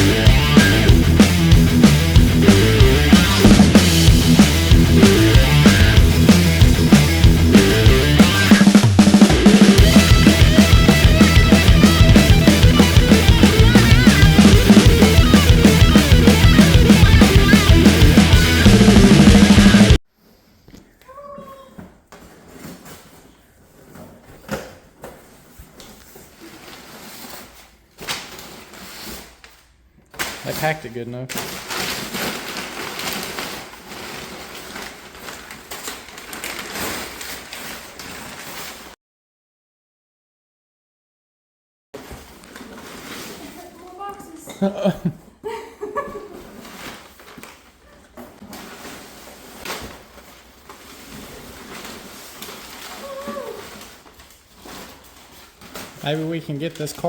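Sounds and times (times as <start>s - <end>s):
cardboard scraping and rustling: 22.1s - 29.5s, 31.4s - 38.9s, 42.0s - 44.3s, 46.2s - 56.6s
cardboard box rustling and scraping: 25.0s - 27.8s, 42.0s - 44.3s.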